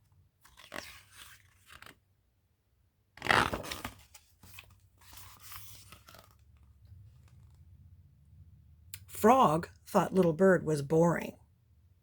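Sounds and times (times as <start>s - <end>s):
book page turning: 0.4s - 2.1s, 3.2s - 7.7s.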